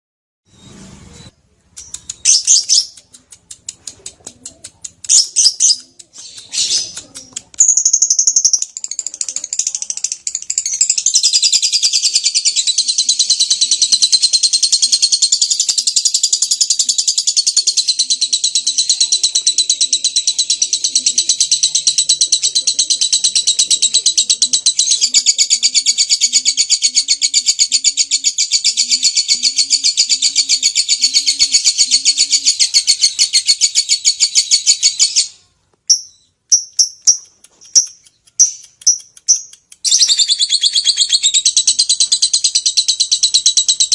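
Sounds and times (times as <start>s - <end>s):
lovebird rapid chatter: 1.8s - 27.8s, 35.9s - 43.9s
short bird chirps: 34.6s - 43.0s.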